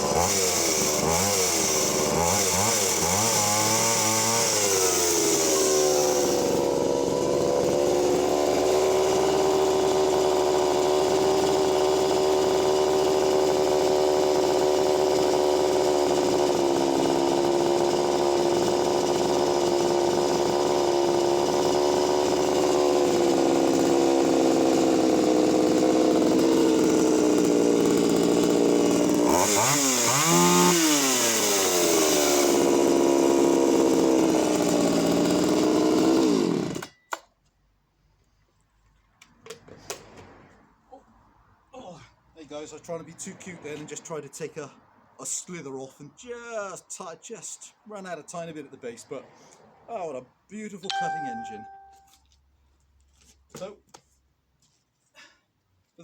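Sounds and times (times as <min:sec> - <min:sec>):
chainsaw cutting wood and revving: 0:00.0 - 0:37.0, 0:50.9 - 0:52.2.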